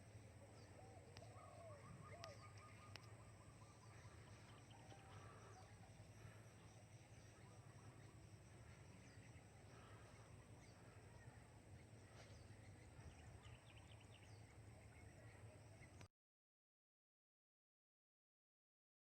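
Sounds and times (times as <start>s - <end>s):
low background noise: 0.0s - 16.1s
small bird chirps: 0.5s - 14.6s.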